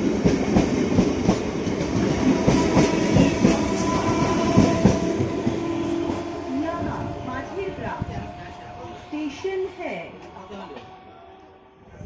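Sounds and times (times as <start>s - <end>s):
train running rumble: 0.0s - 9.4s.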